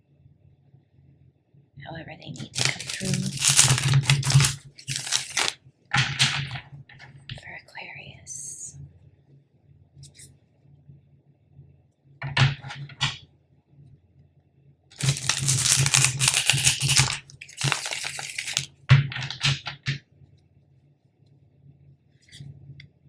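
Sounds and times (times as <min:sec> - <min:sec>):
cards being shuffled: 0:02.4 - 0:05.6, 0:15.0 - 0:19.5.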